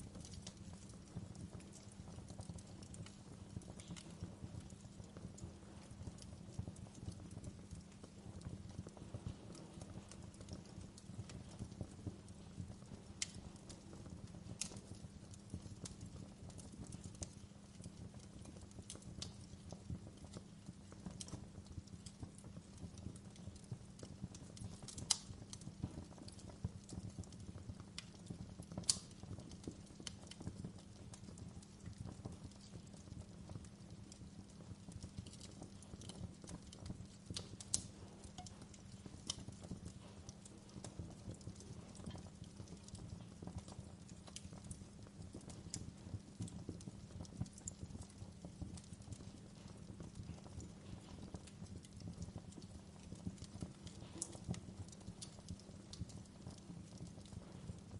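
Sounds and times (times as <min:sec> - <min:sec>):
low rumble of flames: 0:00.0 - 0:57.9
wood fire crackling: 0:00.0 - 0:57.9
sharp fire pops: 0:28.8 - 0:30.5, 0:53.4 - 0:54.6.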